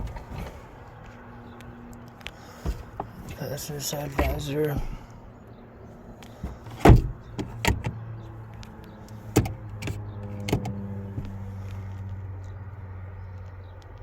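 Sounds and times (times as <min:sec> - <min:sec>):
steady low hum: 0:02.4 - 0:07.6
sun visor clicks and knocks: 0:02.6 - 0:03.4, 0:04.1 - 0:05.0, 0:06.2 - 0:12.1.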